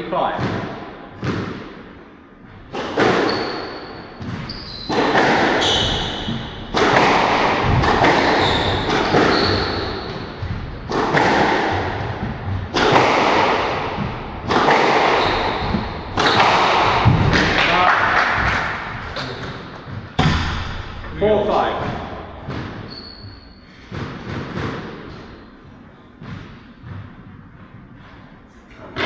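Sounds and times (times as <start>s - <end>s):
court shoes squeaking: 2.3s - 29.0s
squash ball hits ringing: 2.8s - 19.6s, 20.2s - 25.5s.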